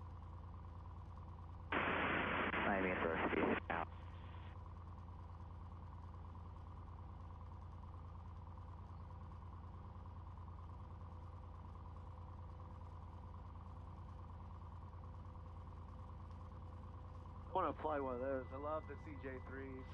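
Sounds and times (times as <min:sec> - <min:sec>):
airplane engine droning: 0:01.1 - 0:04.6, 0:12.5 - 0:19.9.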